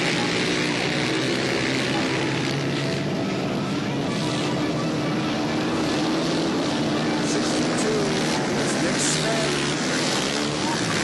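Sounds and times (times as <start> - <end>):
motorcycle engines racing: 0.0 - 11.0.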